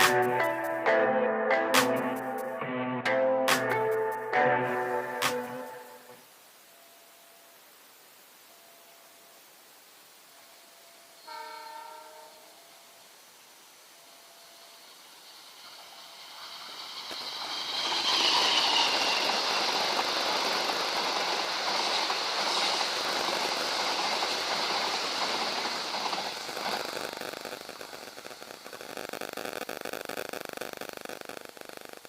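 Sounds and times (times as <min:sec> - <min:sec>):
train wheels clattering on rails: 0:15.5 - 0:26.8.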